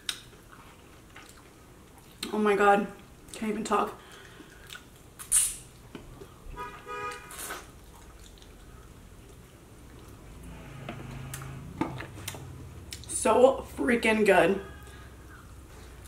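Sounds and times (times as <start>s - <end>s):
wet mouth smacks chewing: 4.1s - 6.3s, 7.4s - 10.2s.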